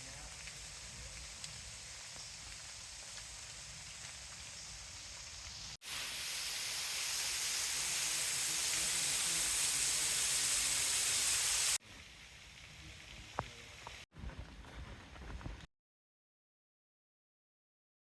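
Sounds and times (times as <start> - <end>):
hiss of water in forest: 0.0 - 14.1.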